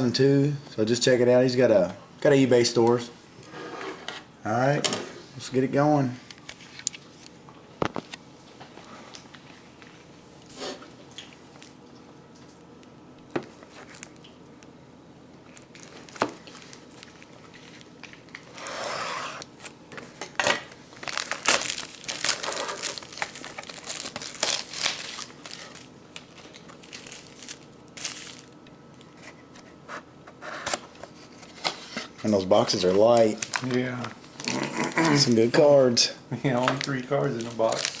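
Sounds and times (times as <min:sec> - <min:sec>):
wrapping crinkling and tearing: 0:15.4 - 0:18.6, 0:20.9 - 0:28.7, 0:32.6 - 0:35.5, 0:36.6 - 0:38.0.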